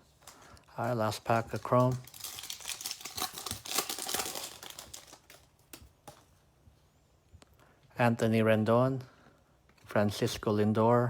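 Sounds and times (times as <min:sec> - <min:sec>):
foil wrapper crinkling and tearing: 0:00.1 - 0:06.2.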